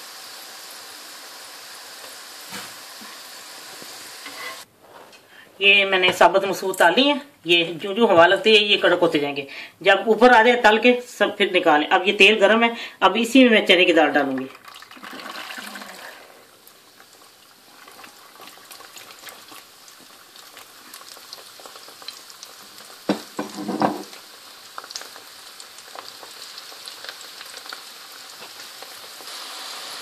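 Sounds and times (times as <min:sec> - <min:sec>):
lentils sizzling in hot oil: 0:00.0 - 0:04.7, 0:14.6 - 0:30.0.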